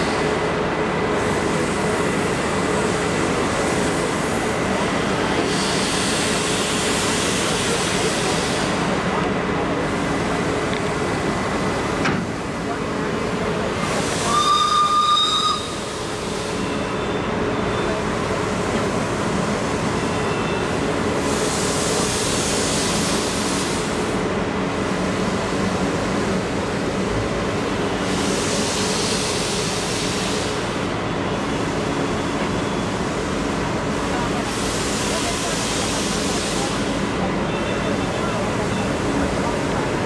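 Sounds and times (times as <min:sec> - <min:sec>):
train coaches running on rails: 0:00.0 - 0:40.0
steam hiss: 0:01.2 - 0:09.1, 0:13.8 - 0:16.6, 0:21.2 - 0:24.3, 0:27.8 - 0:31.0, 0:32.8 - 0:37.2
high train whistle: 0:14.2 - 0:16.0.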